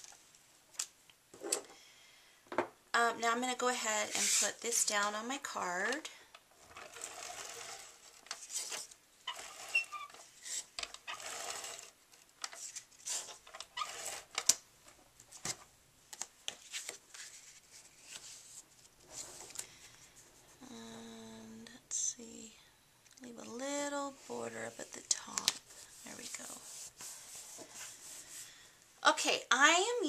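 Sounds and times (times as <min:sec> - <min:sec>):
paper rustling: 0:16.2 - 0:20.2.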